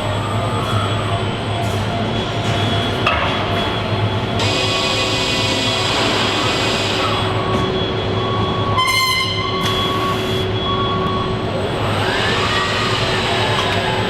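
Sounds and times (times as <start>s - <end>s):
machinery humming: 0.0s - 14.0s
horn-like warning tone: 3.6s - 11.9s.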